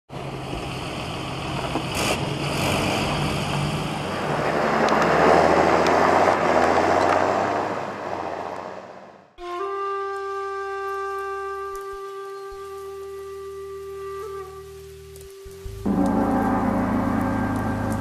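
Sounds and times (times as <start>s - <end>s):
farm machinery engine running: 15.8s - 18.0s.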